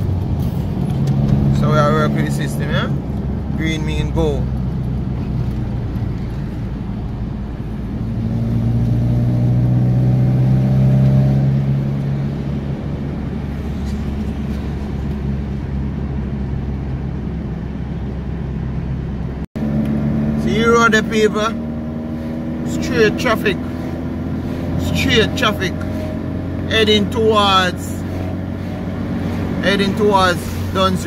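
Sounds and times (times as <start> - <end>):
car engine: 0.0 - 31.0
road noise: 0.0 - 31.0.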